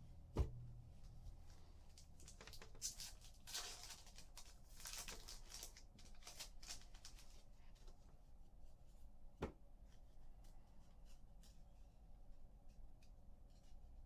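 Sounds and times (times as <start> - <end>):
soft thump on table: 0.4 - 0.6.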